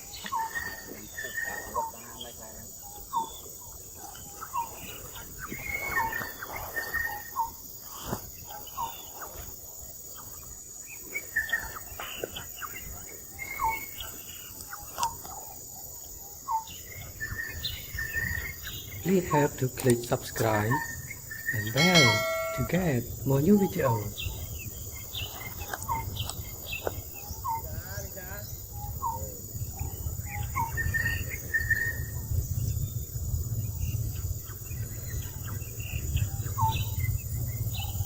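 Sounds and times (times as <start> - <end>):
high insect drone: 0.0 - 38.0
short chirping calls: 16.5 - 24.2.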